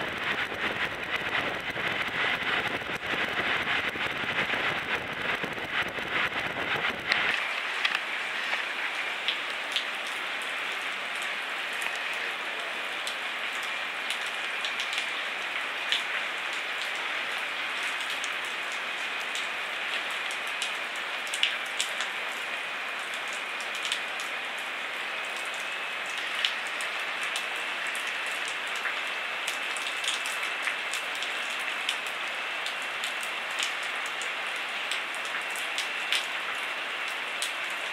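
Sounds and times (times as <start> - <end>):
wind rumble on microphone: 0.0 - 7.6
rain patter: 0.0 - 37.9.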